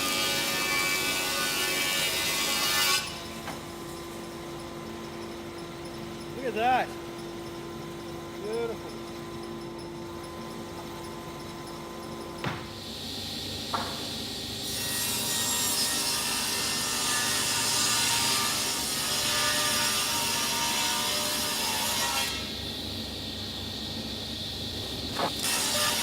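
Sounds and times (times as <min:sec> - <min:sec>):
woodworking machine humming: 0:21.6 - 0:26.0
hiss of wood being cut: 0:25.1 - 0:26.0.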